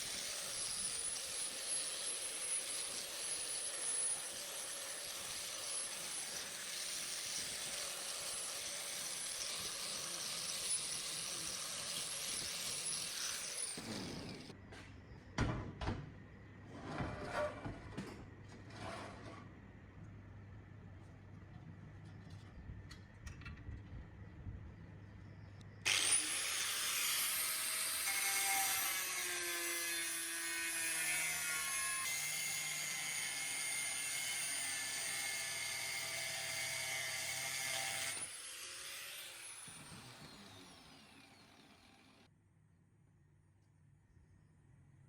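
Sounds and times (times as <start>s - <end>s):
power tool whining on metal: 0.0s - 14.5s, 25.8s - 42.3s.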